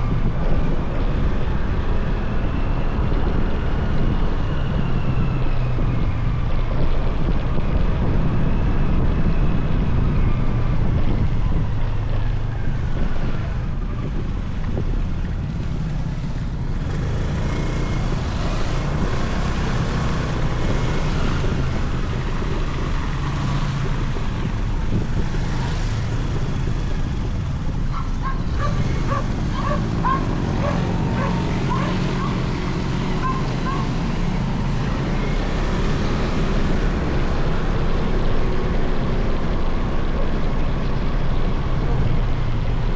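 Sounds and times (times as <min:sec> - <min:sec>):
road and wind noise: 0:00.0 - 0:42.9
motorcycle engine running: 0:11.1 - 0:40.0
dog barking: 0:27.9 - 0:34.0.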